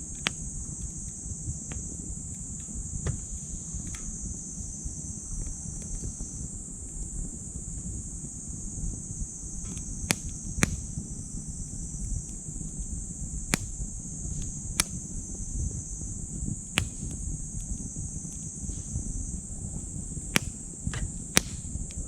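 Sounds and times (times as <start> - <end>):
insect chorus: 0.0 - 22.0
low rumble of flame: 0.0 - 22.0
wood crackling and popping: 9.6 - 22.0.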